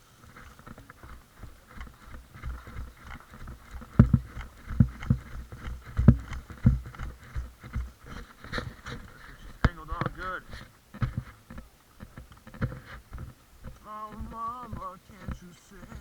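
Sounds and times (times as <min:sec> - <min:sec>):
faint rustling: 0:00.0 - 0:16.0
footsteps thudding: 0:02.2 - 0:11.3.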